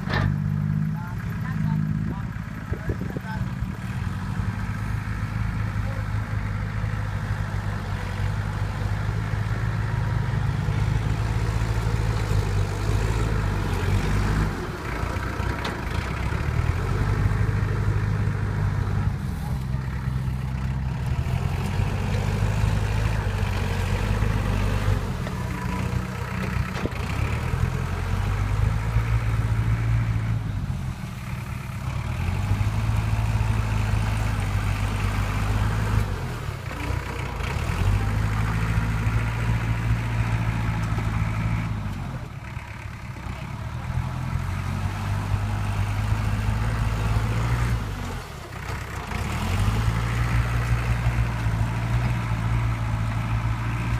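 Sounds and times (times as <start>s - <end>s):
heavy diesel engine running: 0.0s - 53.9s.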